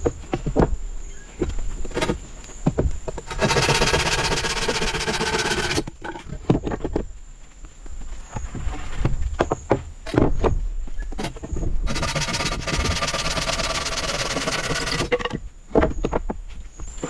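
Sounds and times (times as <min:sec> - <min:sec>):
high insect drone: 0:00.0 - 0:06.4, 0:11.2 - 0:16.0
rapid rattle of strokes: 0:03.2 - 0:06.0, 0:11.9 - 0:15.4.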